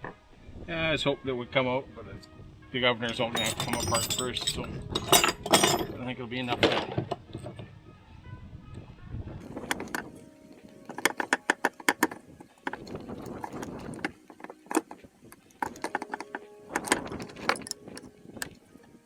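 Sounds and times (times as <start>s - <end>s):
metal parts clinking and tapping: 3.1s - 7.7s, 9.4s - 18.6s.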